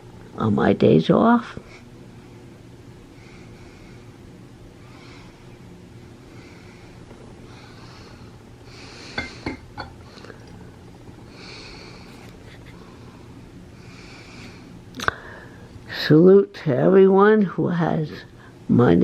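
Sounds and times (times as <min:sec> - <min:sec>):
low steady hum: 0:00.0 - 0:19.0
soft breathing: 0:01.6 - 0:15.9.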